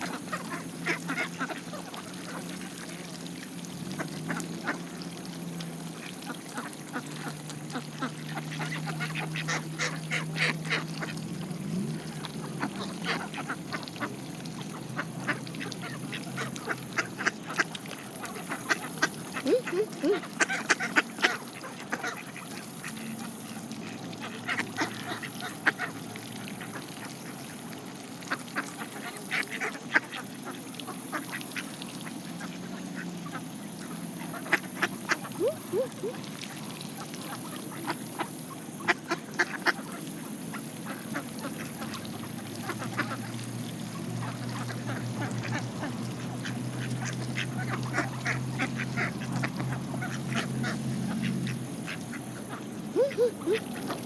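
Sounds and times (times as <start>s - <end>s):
ducks quacking: 0.0s - 3.0s, 6.2s - 11.3s, 12.0s - 23.2s, 23.8s - 27.1s, 34.2s - 43.4s, 44.0s - 54.0s.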